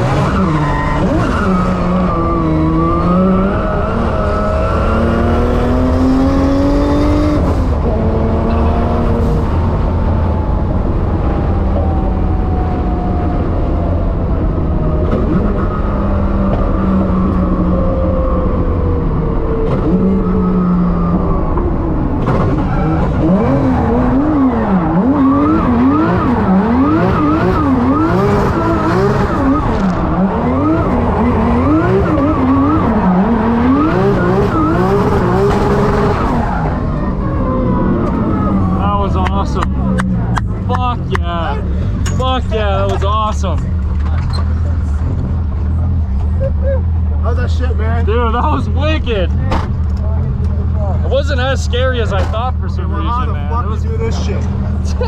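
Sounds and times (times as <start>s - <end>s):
car engine revving: 0.0s - 55.0s
tyres skidding: 0.0s - 55.0s.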